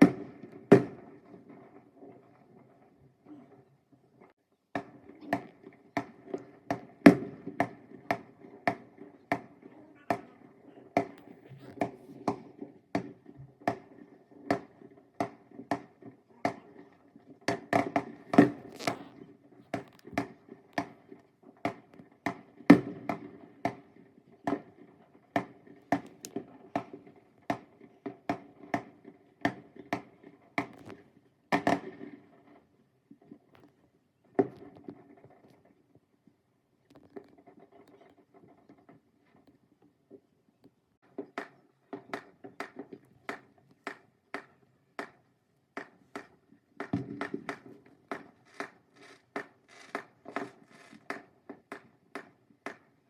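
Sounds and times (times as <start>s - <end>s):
fireworks bangs and pops: 0.0s - 40.3s, 41.0s - 53.0s.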